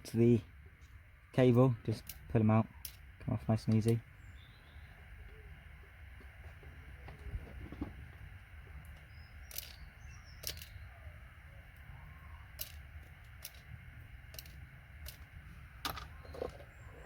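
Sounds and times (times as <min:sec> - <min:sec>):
low steady hum: 0:00.0 - 0:17.0
connector pins clicking out: 0:08.9 - 0:09.8, 0:10.4 - 0:10.8, 0:12.5 - 0:13.7, 0:14.3 - 0:16.6.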